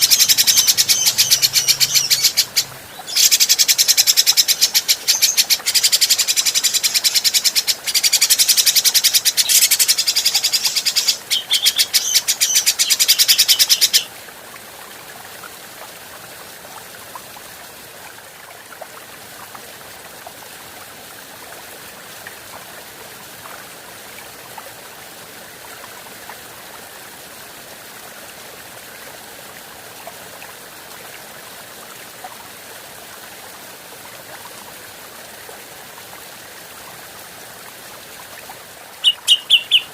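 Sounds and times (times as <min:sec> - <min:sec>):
bird singing rapid high notes: 0:00.0 - 0:03.4, 0:39.0 - 0:39.9.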